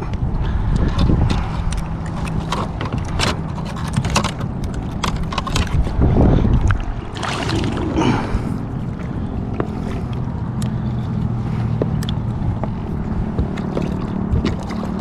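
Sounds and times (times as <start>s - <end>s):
wind buffeting microphone: 0.0s - 15.0s
handling clicks and knocks on kayak: 0.8s - 6.8s.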